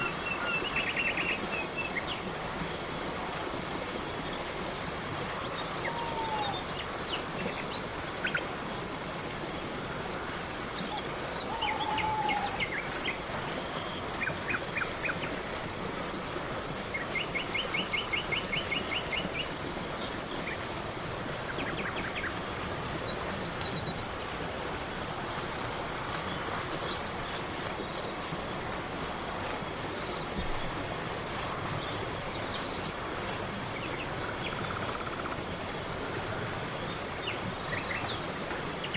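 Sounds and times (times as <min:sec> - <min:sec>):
faint bird calls and trills: 0:00.0 - 0:02.4, 0:05.2 - 0:08.6, 0:10.8 - 0:15.4
crickets chirping: 0:00.0 - 0:38.9.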